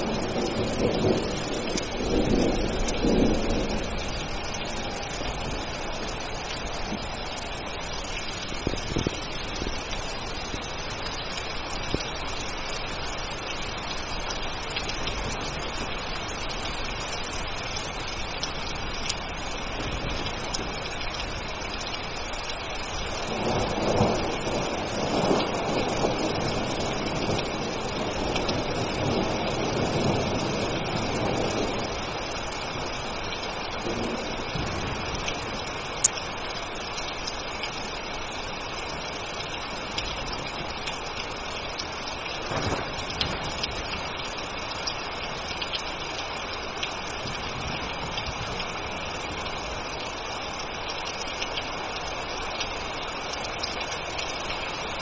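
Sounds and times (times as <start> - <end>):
rolling thunder: 0.0 - 10.6, 22.8 - 36.0, 42.2 - 44.6, 47.1 - 50.0
rain falling: 0.0 - 55.0.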